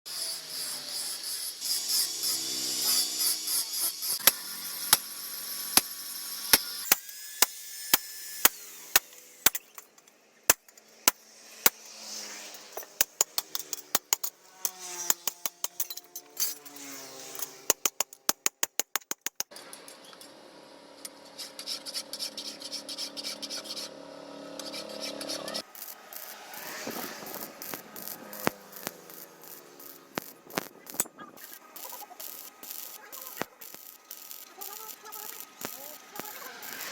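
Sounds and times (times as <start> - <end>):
hand tool striking metal: 12.8 - 19.4.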